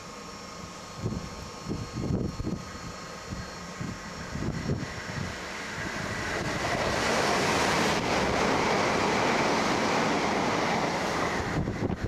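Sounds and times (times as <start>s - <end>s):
faint high whine: 0.0s - 8.9s
train passing at speed: 0.0s - 12.0s.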